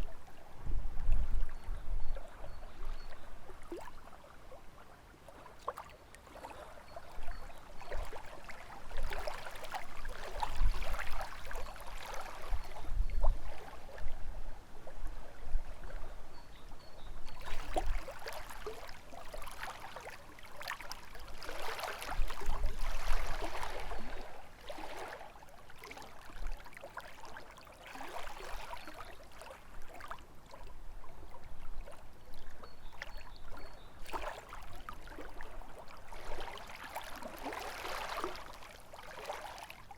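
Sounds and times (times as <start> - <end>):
waves lapping against shore: 1.2 - 14.2, 17.3 - 39.9.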